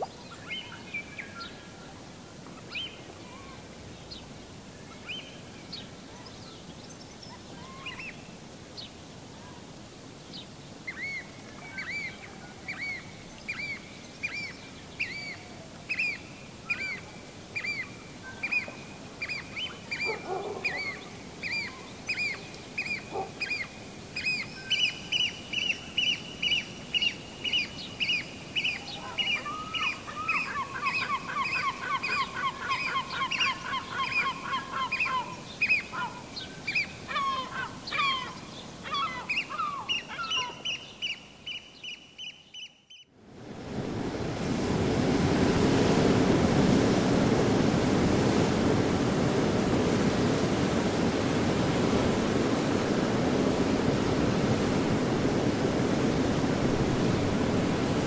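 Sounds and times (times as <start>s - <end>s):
steady hiss: 0.0s - 20.0s, 20.6s - 41.8s.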